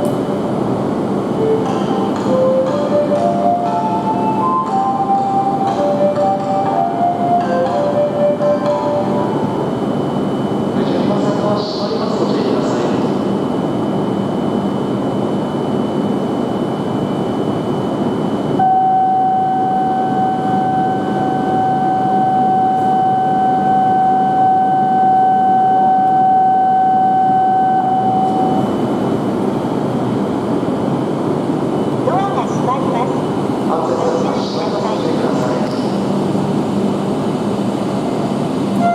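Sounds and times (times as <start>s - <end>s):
steady high tone: 18.6s - 29.3s.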